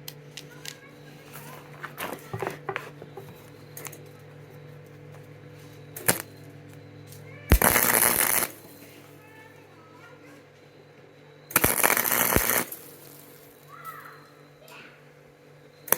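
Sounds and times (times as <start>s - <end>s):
electric welding arc crackling: 6.0s - 6.3s, 7.5s - 8.9s, 11.5s - 13.7s.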